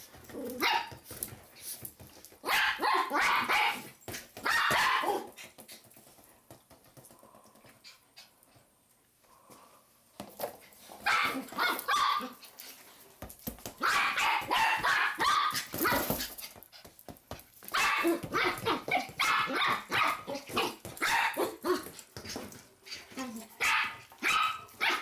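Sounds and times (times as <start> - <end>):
dog barking: 2.4 - 5.3, 11.1 - 12.4, 13.8 - 16.0, 17.7 - 21.8, 23.6 - 25.0.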